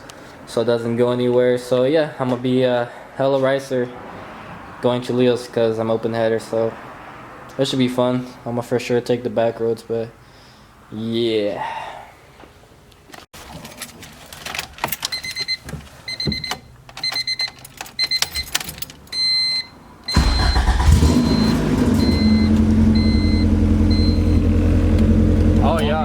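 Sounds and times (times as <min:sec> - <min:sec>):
car warning chime beeping: 0:15.1 - 0:18.5, 0:19.1 - 0:25.1
starter motor cranking: 0:20.1 - 0:25.8
loud engine idling: 0:20.2 - 0:26.0.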